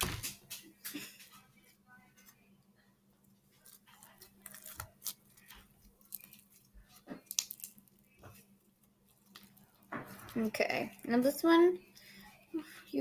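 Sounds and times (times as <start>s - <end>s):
slime crackling and popping: 3.6s - 8.2s, 9.0s - 11.4s.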